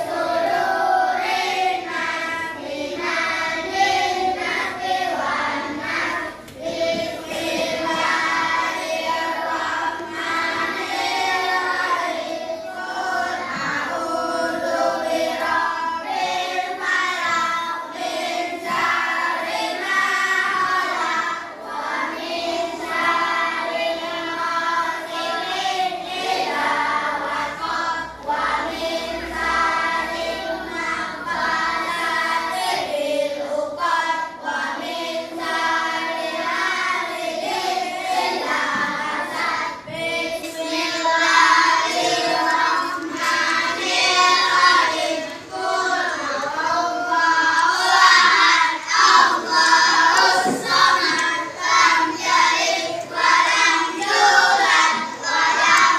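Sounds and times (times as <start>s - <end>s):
children singing in unison: 0.0s - 55.9s.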